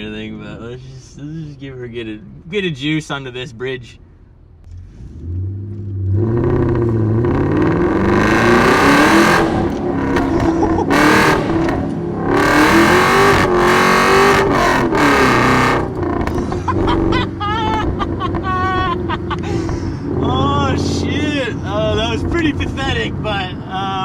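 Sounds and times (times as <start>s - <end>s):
car engine revving hard: 4.7s - 22.5s.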